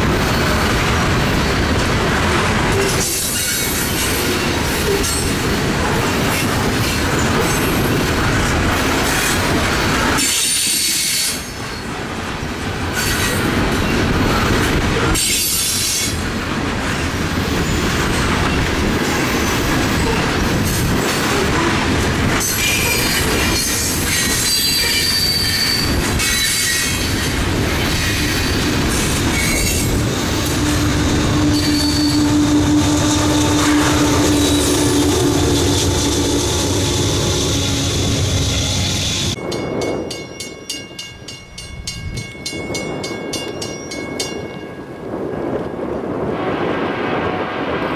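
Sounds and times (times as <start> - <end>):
high-pitched flange squeal: 30.4 - 39.4.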